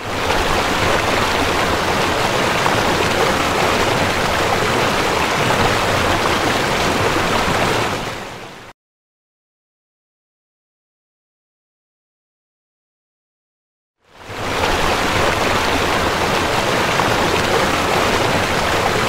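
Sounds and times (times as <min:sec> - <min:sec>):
heavy rain: 0:00.0 - 0:08.7, 0:14.2 - 0:19.0.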